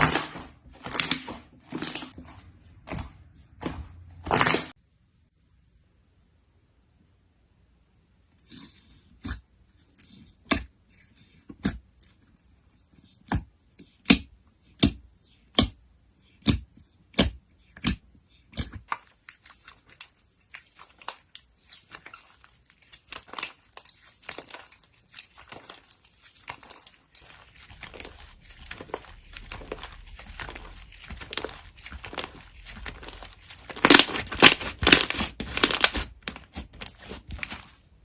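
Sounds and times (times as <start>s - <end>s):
rapid slime crackles: 18.8s - 38.0s.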